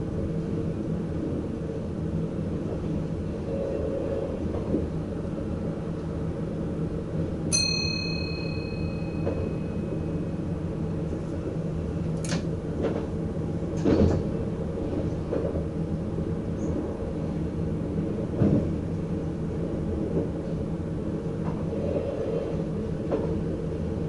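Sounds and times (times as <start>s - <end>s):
wheels rumbling on rails: 0.0s - 24.0s
bell-like ding: 7.5s - 10.1s.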